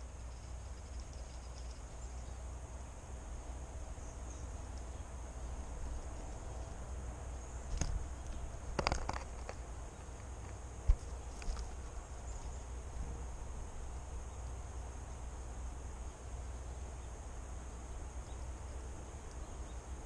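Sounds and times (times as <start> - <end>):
high insect-like trill: 0.0 - 2.8.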